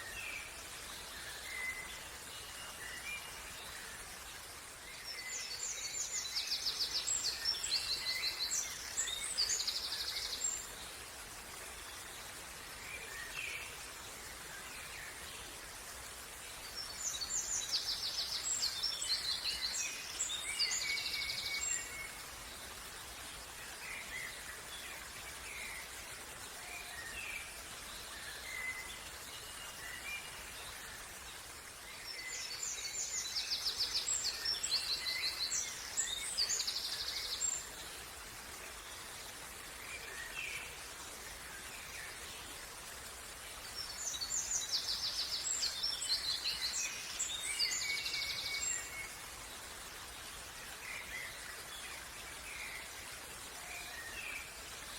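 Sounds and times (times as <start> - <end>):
steady background hiss: 0.0 - 54.9.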